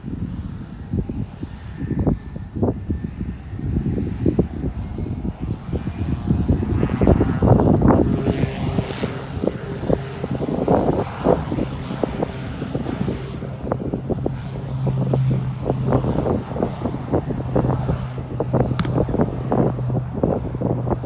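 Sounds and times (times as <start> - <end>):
aircraft engine hum: 0.0 - 21.0
wind buffeting microphone: 0.0 - 21.0.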